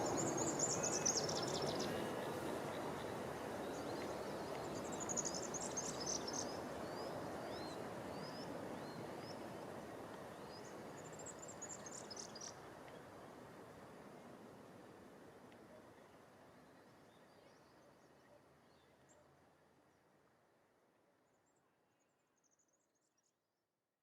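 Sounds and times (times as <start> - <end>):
background hiss: 0.0 - 17.9.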